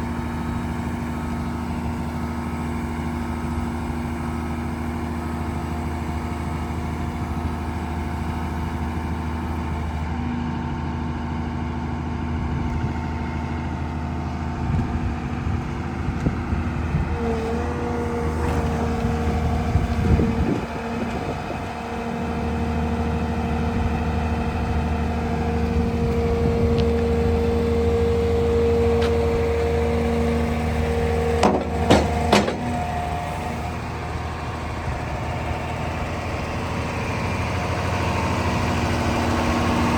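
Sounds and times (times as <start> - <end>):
diesel engine running: 0.0 - 39.9
steady whine: 14.7 - 39.9.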